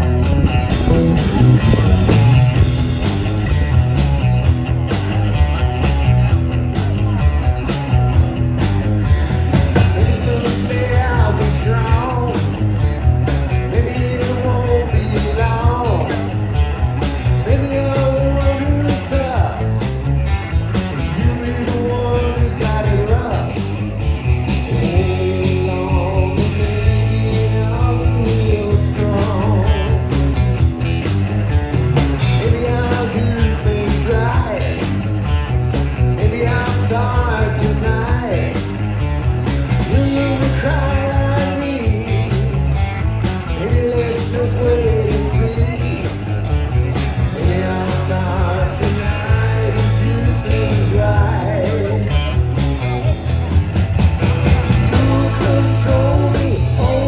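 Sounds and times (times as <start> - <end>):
guitar: 0.0 - 57.0
rock and roll band playing: 0.0 - 57.0
steady bass beat: 0.0 - 57.0
person singing: 9.8 - 12.7, 13.5 - 16.4, 21.1 - 23.6, 24.7 - 30.1, 32.2 - 35.0, 39.9 - 42.6, 43.4 - 46.2, 47.2 - 52.4, 54.4 - 57.0.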